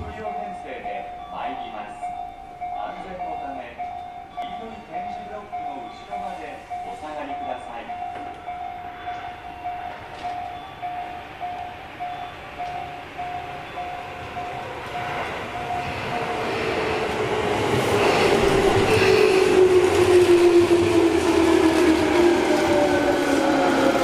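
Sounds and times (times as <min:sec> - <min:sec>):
level crossing bell ringing: 0:00.0 - 0:16.6
train low whine: 0:00.0 - 0:24.0
train wheels rumbling on rails: 0:00.0 - 0:24.0.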